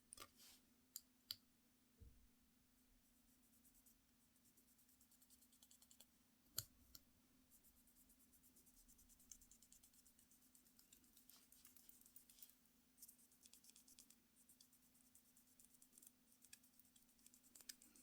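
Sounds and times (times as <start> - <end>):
fine ticking and scratching: 7.7 - 18.0.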